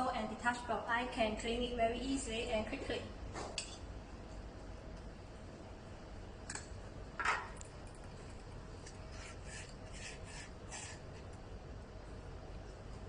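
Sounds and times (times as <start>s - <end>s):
short rubbing scrapes: 9.1s - 11.0s.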